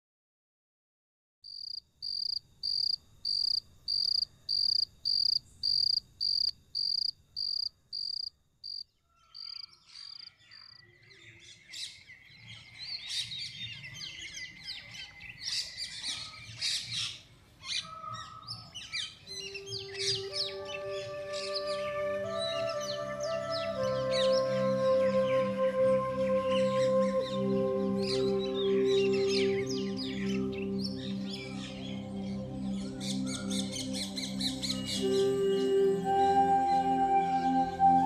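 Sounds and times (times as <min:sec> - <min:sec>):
chorus of bird chirps: 0:01.6 - 0:38.0.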